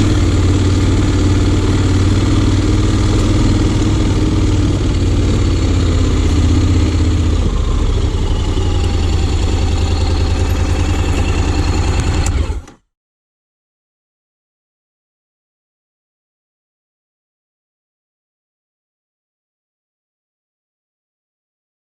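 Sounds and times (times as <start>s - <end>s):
motorcycle engine running low: 0.0s - 12.8s.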